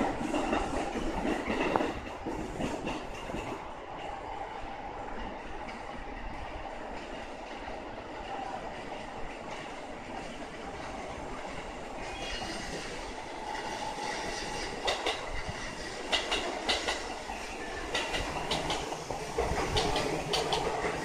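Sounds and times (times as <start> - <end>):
train wheels clicking over rail joints: 0.0 - 3.7, 8.8 - 21.0.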